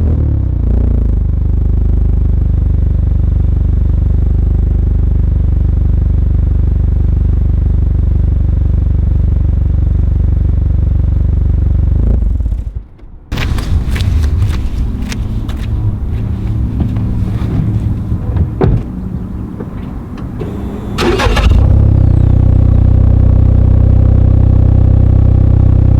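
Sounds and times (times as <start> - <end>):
car engine idling: 13.3 - 24.3
loud engine sound: 13.3 - 25.9.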